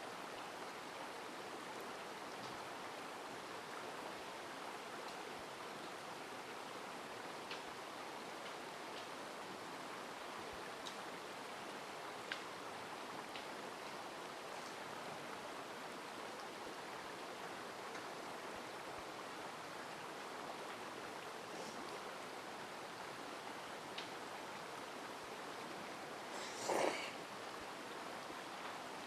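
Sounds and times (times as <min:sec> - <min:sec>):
mountain stream rushing: 0:00.0 - 0:29.0.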